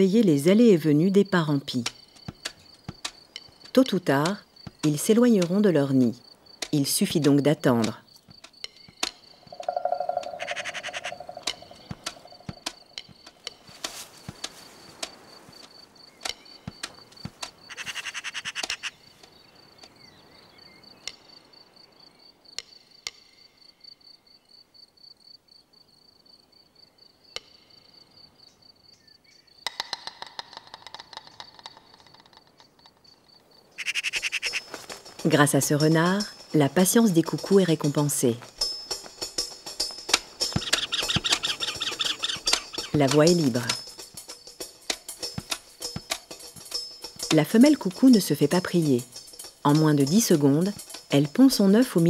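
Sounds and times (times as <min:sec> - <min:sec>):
crickets trilling: 0:00.0 - 0:52.0
rattling bird calls: 0:09.5 - 0:13.0, 0:29.7 - 0:33.2, 0:33.8 - 0:37.9, 0:38.7 - 0:51.8.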